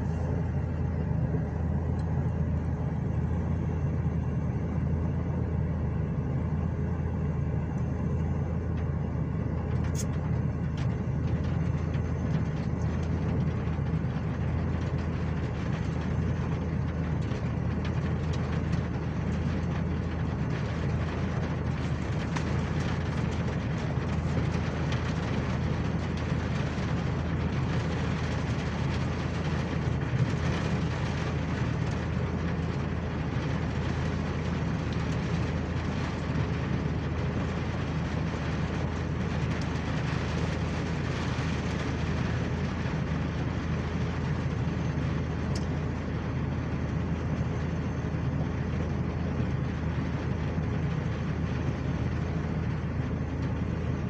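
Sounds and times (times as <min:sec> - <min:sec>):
vehicle rumbling in motion: 0:00.0 - 0:54.0.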